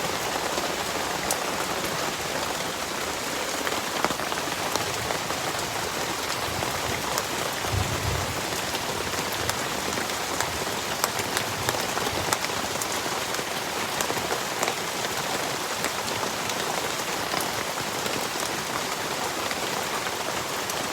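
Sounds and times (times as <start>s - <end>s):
heavy rain pouring: 0.0s - 20.9s
raindrops clicking: 3.5s - 14.8s.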